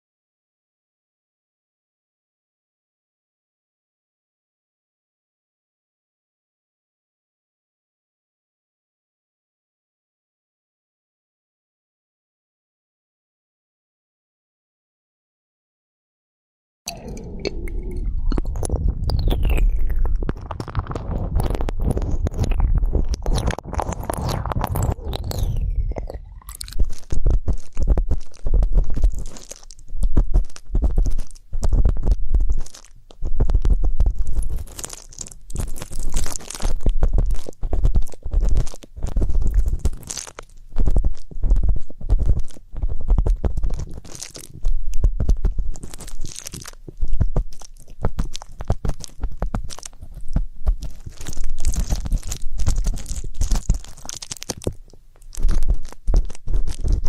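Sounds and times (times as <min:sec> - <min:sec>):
muffled low thumps: 0:17.4 - 0:23.3.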